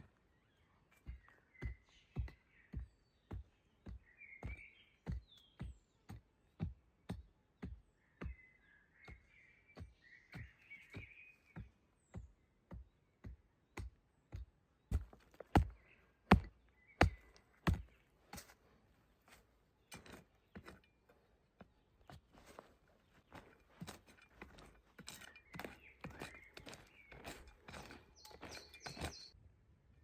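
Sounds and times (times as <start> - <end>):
birds chirping: 0.0 - 29.4
wood being chopped: 9.8 - 18.5, 23.3 - 29.3.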